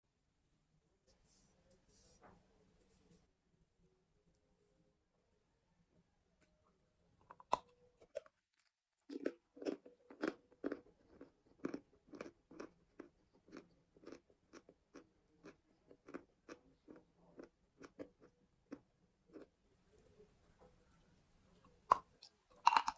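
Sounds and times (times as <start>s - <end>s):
crunchy chewing: 7.4s - 19.5s, 21.6s - 22.9s.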